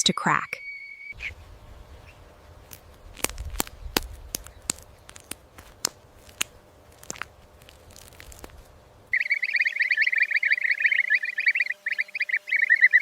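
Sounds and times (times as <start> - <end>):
eggshell cracking: 2.6 - 8.7.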